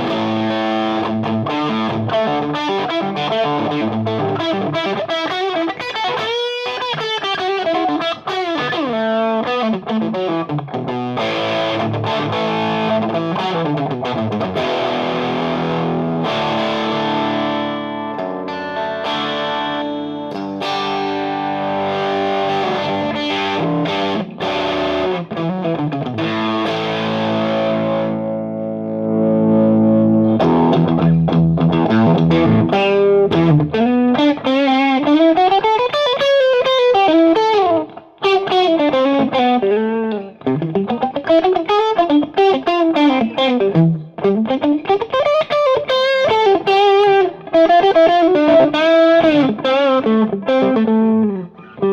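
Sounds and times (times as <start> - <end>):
distorted electric guitar chords: 0.0 - 51.9
electric guitar lead with bends: 0.0 - 51.9.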